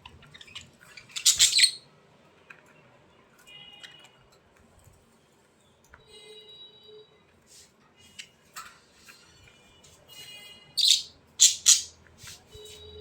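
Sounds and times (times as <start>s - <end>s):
bird chirps: 10.8s - 12.0s
harsh bird squawks: 10.8s - 12.0s.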